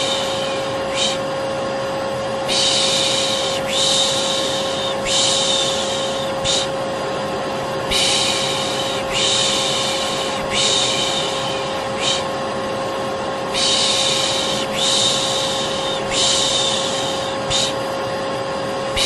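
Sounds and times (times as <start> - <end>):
person shushing: 0.0 - 1.3, 2.5 - 6.8, 7.9 - 12.3, 13.5 - 17.9
vacuum cleaner running: 0.0 - 19.0.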